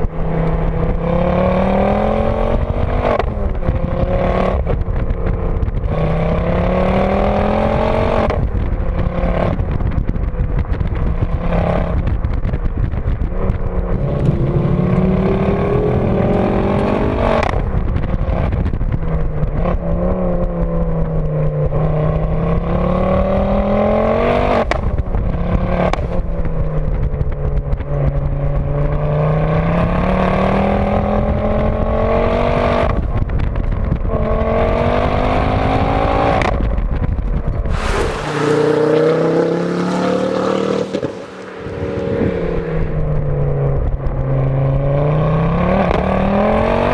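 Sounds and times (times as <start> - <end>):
car engine accelerating through gears: 0.0 - 9.9, 13.5 - 26.9, 34.1 - 46.9.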